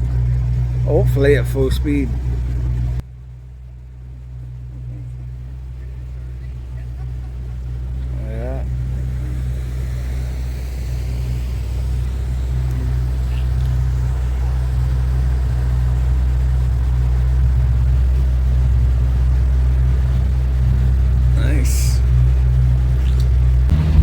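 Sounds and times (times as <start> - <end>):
motorboat engine droning: 0.0 - 24.0.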